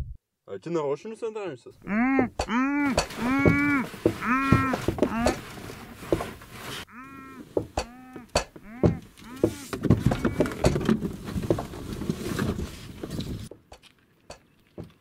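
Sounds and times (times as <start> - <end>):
muffled man moaning: 1.8 - 5.4, 6.9 - 10.8
rustling: 1.8 - 15.0
knocking and thumping: 2.1 - 6.8, 7.5 - 12.8.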